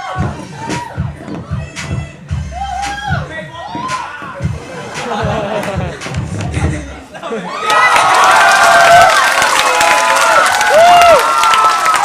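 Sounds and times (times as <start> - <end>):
crowd cheering and screaming: 7.4 - 12.0
applause: 7.6 - 12.0.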